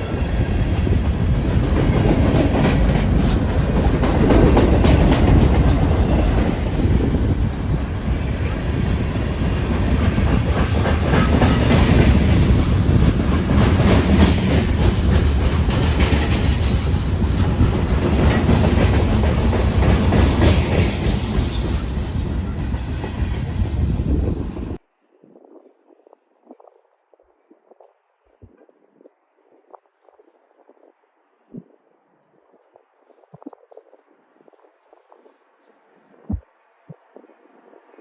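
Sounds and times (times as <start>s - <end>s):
train rumbling past: 0.0s - 24.8s
wheels clacking over rail joints: 0.8s - 7.0s.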